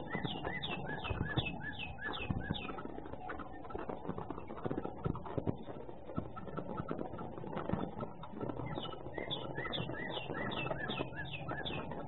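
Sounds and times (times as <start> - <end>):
bird calling repeated notes: 0.0 - 2.8, 8.7 - 12.0
soft clicks and ticks: 0.0 - 12.0.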